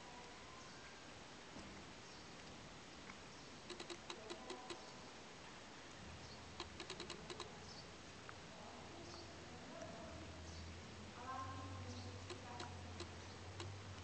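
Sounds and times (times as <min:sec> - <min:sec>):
faint background noise: 0:00.0 - 0:14.0
quick light clicks: 0:03.7 - 0:04.8, 0:06.6 - 0:07.5, 0:12.2 - 0:14.0.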